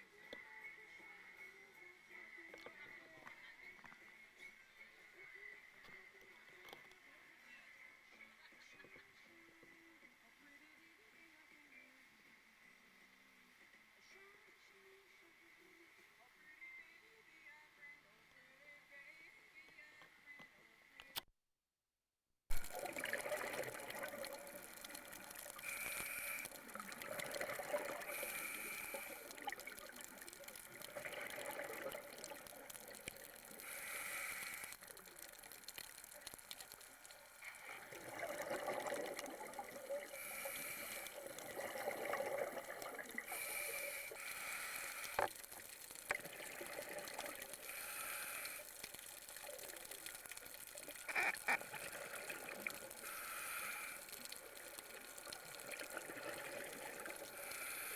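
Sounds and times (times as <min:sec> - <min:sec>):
diver exhaling bubbles underwater: 0:22.5 - 0:34.8, 0:37.5 - 0:45.4, 0:46.0 - 0:50.2, 0:50.9 - 0:57.9
watery hiss: 0:22.5 - 0:57.9.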